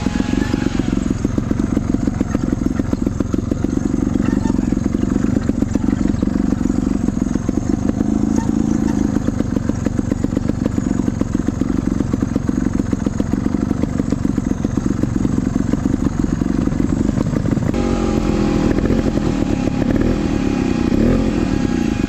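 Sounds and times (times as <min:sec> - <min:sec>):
motorcycle engine revving: 0:00.0 - 0:22.0
thin steady whine: 0:17.7 - 0:22.0.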